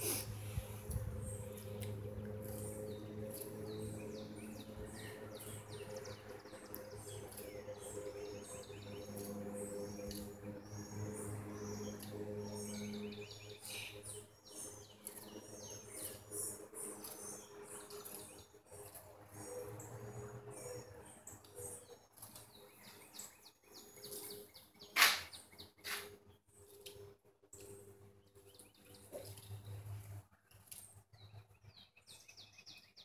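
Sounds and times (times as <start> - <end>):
steady low hum: 0.0 - 24.0
small birds chirping: 0.0 - 33.0
sharp knock or scrape: 25.0 - 26.1.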